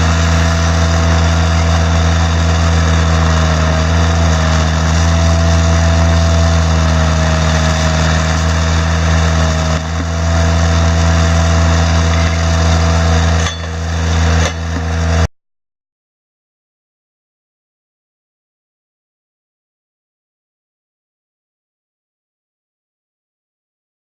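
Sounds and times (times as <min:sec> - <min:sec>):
engine running: 0:00.0 - 0:15.3
steady whine: 0:00.0 - 0:15.3.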